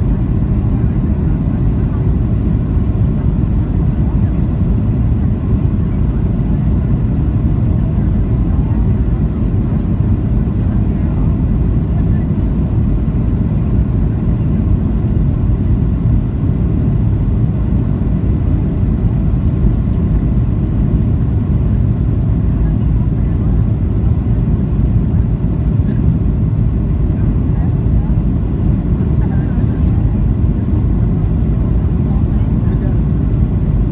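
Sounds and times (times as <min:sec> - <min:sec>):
airplane cabin engine rumble: 0:00.0 - 0:33.9.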